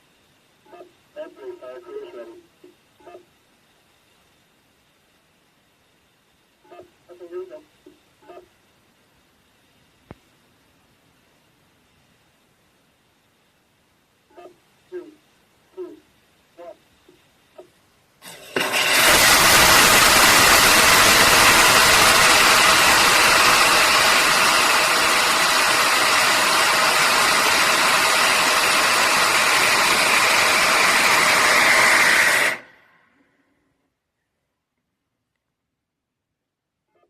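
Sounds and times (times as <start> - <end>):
rocket engine roaring: 18.6 - 32.8.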